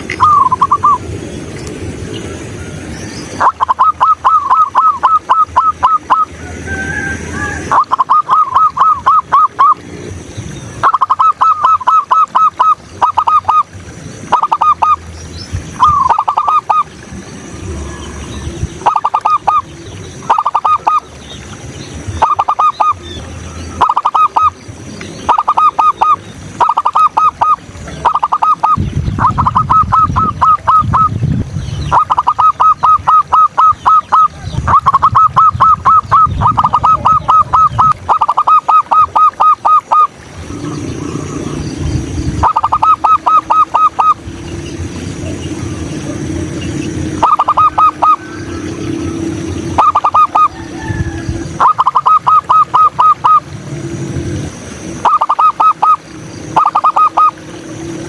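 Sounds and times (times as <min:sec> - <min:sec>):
dove cooing: 0:00.0 - 0:01.0, 0:03.4 - 0:09.8, 0:31.9 - 0:53.5, 0:55.0 - 0:57.5.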